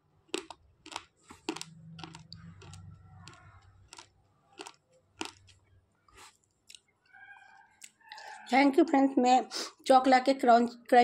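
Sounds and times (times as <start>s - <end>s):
pencil crunching between teeth: 0.3s - 5.6s.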